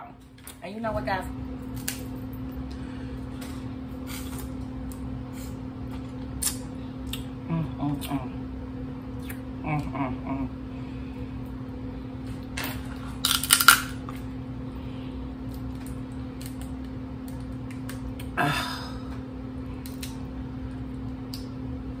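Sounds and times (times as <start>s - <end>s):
steady low hum: 0.0s - 22.0s
shells cracking by hand: 13.2s - 14.0s.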